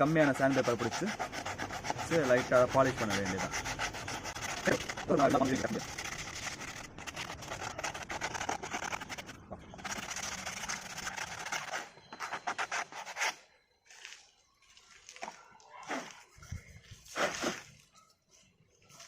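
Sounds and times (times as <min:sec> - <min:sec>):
sandpaper rubbing on wood: 0:00.0 - 0:13.4.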